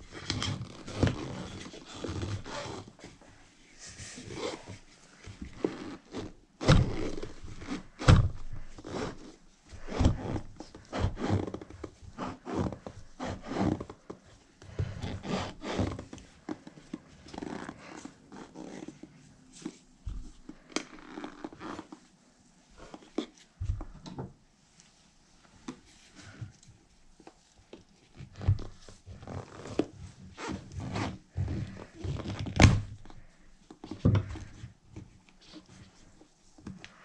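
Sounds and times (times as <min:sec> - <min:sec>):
rubber tire rubbing and scraping: 0:00.1 - 0:03.1, 0:05.5 - 0:14.2, 0:14.8 - 0:22.1.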